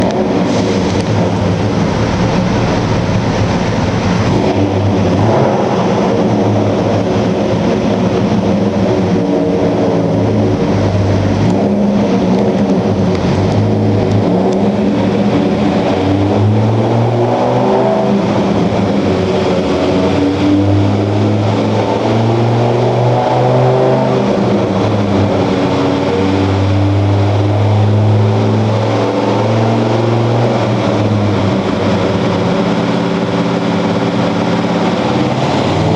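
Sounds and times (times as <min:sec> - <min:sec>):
engine revving under load: 0:00.0 - 0:35.9.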